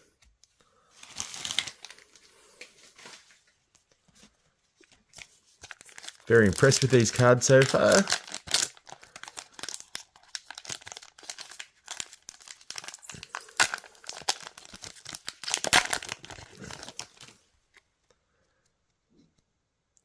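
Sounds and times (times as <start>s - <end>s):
wrapper crinkling and tearing: 1.0s - 2.3s, 4.9s - 17.4s.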